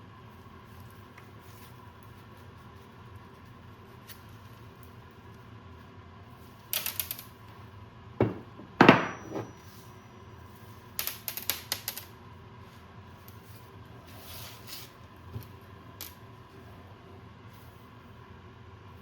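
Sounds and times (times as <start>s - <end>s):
metal tools clattering: 8.8s - 9.7s.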